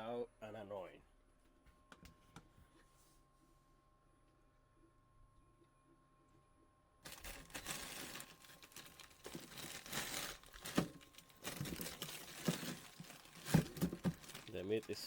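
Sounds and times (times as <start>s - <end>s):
faint steady hum: 0.0s - 15.0s
plastic packaging crinkling: 7.0s - 15.0s.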